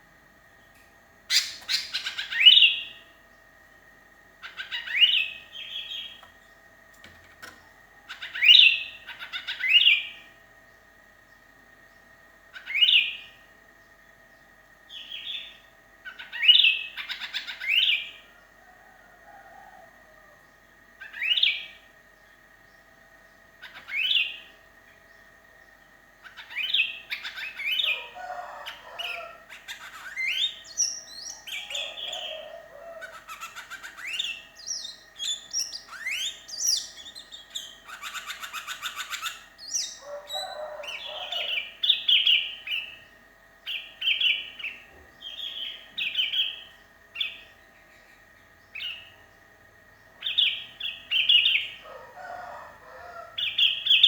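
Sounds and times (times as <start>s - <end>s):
bird whistled calls: 1.3s - 3.0s, 4.4s - 6.2s, 12.6s - 13.4s, 26.2s - 43.0s.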